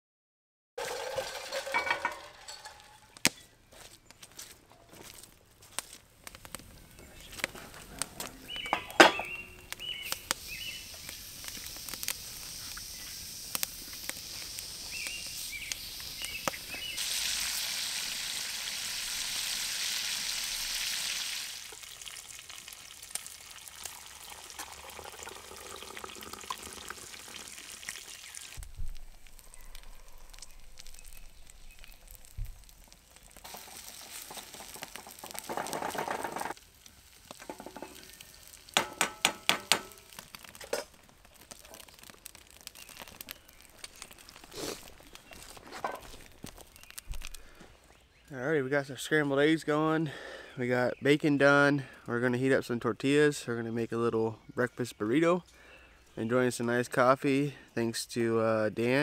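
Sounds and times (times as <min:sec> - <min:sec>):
bacon sizzling in a skillet: 0:08.4 - 0:47.4
eggs stirred and scraped in pan: 0:28.6 - 0:36.6, 0:37.2 - 0:47.6.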